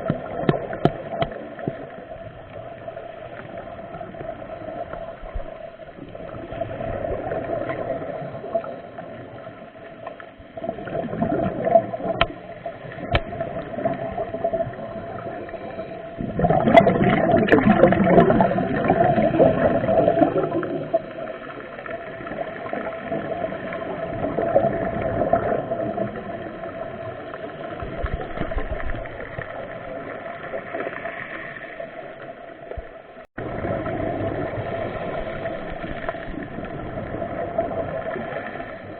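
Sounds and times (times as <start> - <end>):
bubbles gurgling underwater: 0.0 - 38.9
steady underwater hum: 0.0 - 38.9.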